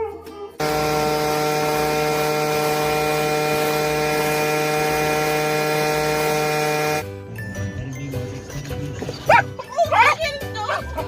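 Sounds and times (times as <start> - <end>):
motor humming: 0.6 - 7.1.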